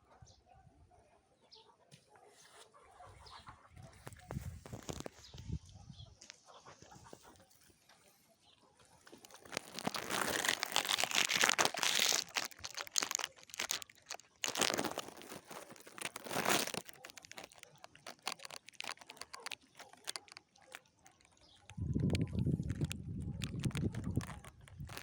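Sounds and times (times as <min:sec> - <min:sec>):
crinkling rustling: 0:03.8 - 0:05.4, 0:08.8 - 0:25.0.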